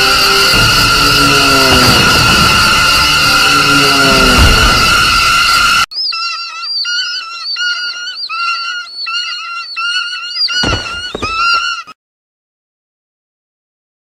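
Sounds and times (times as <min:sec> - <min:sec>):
flock of birds shrieking: 0:00.0 - 0:12.0
heavy thumps: 0:10.5 - 0:11.7.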